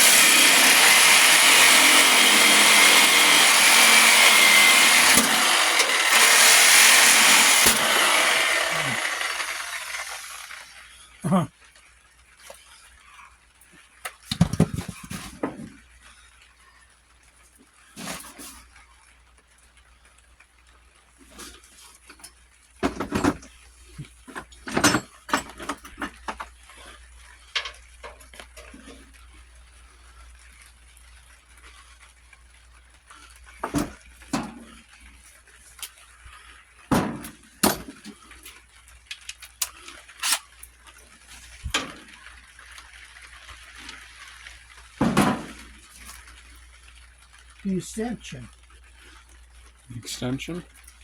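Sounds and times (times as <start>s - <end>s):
metal tools clanking: 24.3s - 26.4s.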